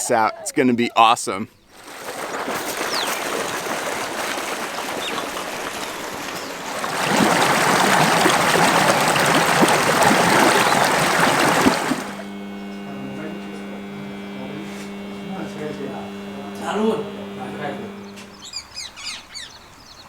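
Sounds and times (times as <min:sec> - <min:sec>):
rushing splashing water: 0:01.7 - 0:12.4
steady low hum: 0:06.8 - 0:19.2.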